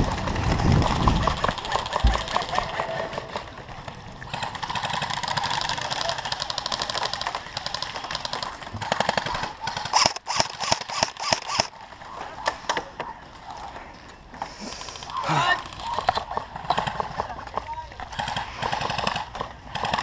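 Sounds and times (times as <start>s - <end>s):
airsoft guns firing: 1.1s - 3.4s, 4.3s - 11.7s, 18.1s - 20.0s.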